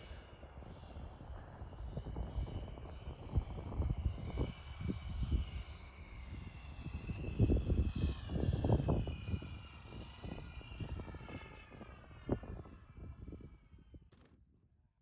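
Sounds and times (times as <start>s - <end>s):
model airplane motor whine: 0.0s - 14.3s
wind buffeting microphone: 0.8s - 14.0s.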